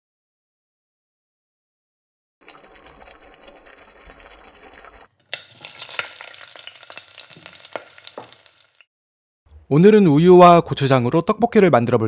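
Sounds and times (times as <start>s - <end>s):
food sizzling in a pan: 3.7s - 8.9s.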